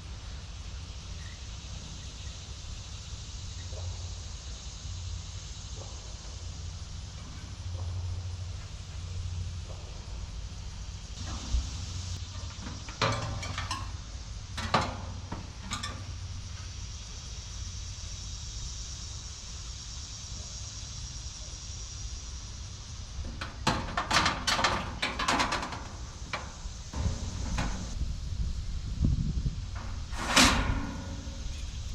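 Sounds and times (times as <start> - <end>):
steady low hum: 0.0 - 23.7, 24.6 - 31.9
high hiss: 0.0 - 31.9
metal clanks and knocks: 11.2 - 14.0, 14.6 - 16.2, 23.3 - 28.2, 29.7 - 31.9.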